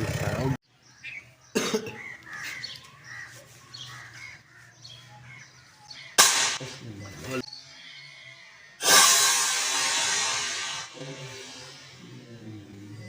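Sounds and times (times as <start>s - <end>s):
birds calling: 0.0s - 13.0s
crows cawing: 1.6s - 6.6s
sudden loud burst of noise: 8.8s - 12.1s.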